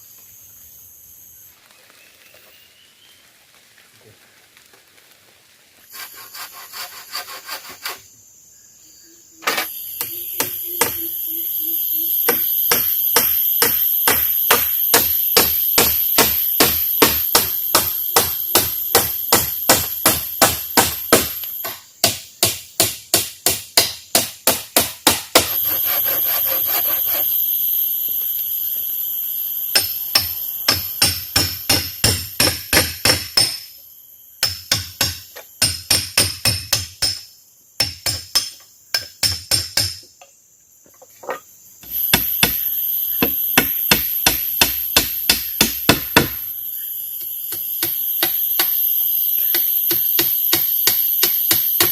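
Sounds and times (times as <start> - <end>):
insects droning: 0.0 - 51.9
steady hammering: 12.3 - 25.6, 29.7 - 33.7, 34.4 - 40.0, 41.8 - 46.5, 47.5 - 48.8, 49.4 - 51.9.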